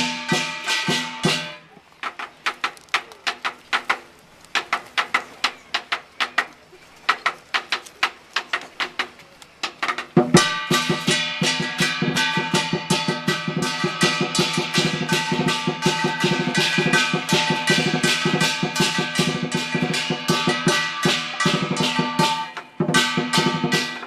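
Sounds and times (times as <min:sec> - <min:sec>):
crashing hand cymbals: 0:00.0 - 0:01.7, 0:10.4 - 0:24.0
drum beaten rapidly: 0:00.0 - 0:24.0.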